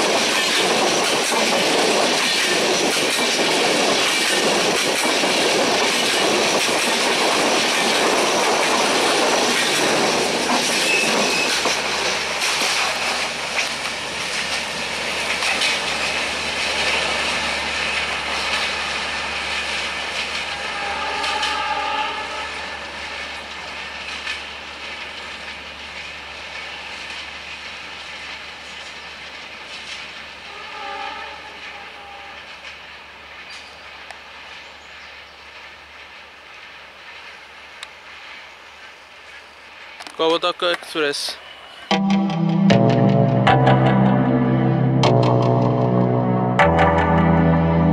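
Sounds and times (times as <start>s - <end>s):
train wheels clattering over joints: 0.0s - 20.6s
faint train horn: 20.5s - 22.8s, 30.5s - 32.5s.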